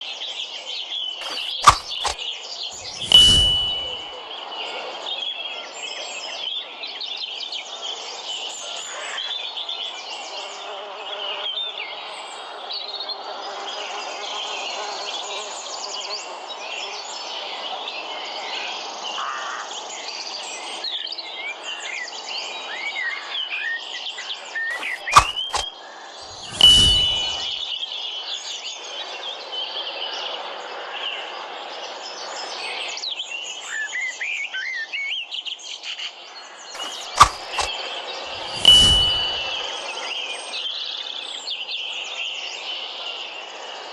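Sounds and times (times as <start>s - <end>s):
sharp knock: 1.2s - 2.2s, 2.8s - 4.1s, 24.7s - 25.6s, 26.3s - 27.5s, 36.8s - 37.7s, 38.4s - 39.6s.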